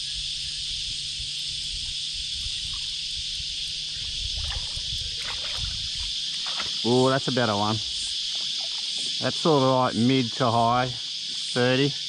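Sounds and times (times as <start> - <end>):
cicadas chorus: 0.0 - 12.0
water splashing and trickling: 3.7 - 10.9.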